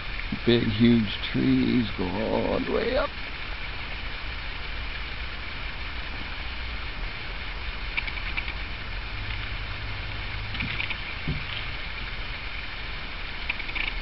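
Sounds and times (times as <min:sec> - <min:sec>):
faint soft ticks: 0:07.9 - 0:09.5, 0:13.4 - 0:14.0.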